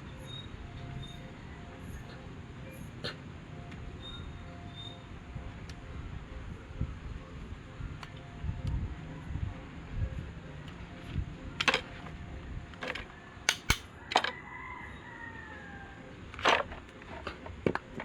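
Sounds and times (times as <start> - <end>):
sharp metallic clicks and taps: 12.8 - 14.3.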